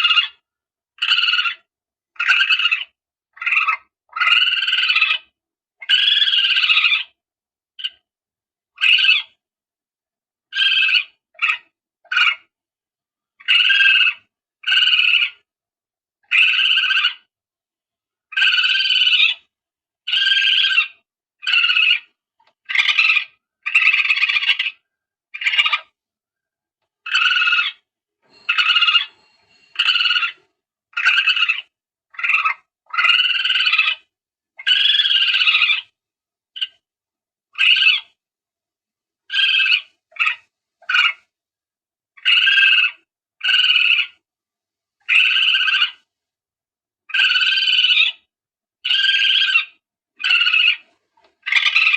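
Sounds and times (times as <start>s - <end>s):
animal cries from a lure: 1.0s - 7.2s, 8.8s - 9.4s, 10.5s - 12.5s, 20.1s - 26.0s, 27.1s - 36.0s, 37.5s - 38.2s, 39.3s - 41.3s, 42.2s - 44.2s, 45.0s - 46.1s, 47.1s - 51.9s.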